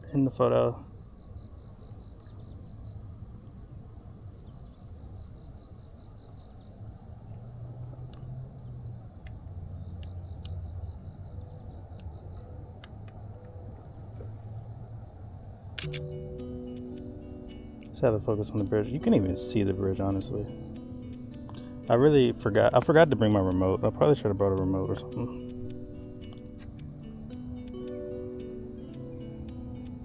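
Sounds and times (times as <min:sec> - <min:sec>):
crickets chirping: 0:00.0 - 0:30.0
faint clicks: 0:15.7 - 0:18.0, 0:24.5 - 0:30.0.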